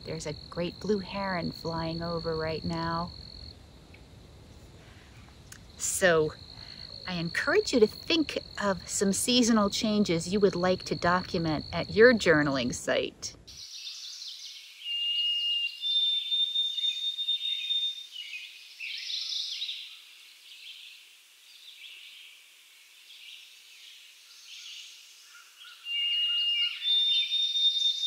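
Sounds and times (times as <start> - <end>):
birds' whistled notes: 13.5 - 22.4, 23.0 - 28.0.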